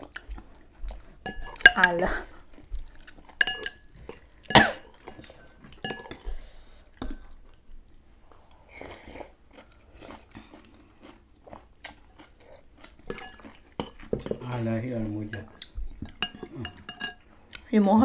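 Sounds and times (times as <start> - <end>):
people chewing: 0.0 - 18.0
utensils clinking against bowls: 1.2 - 6.7, 12.9 - 18.0.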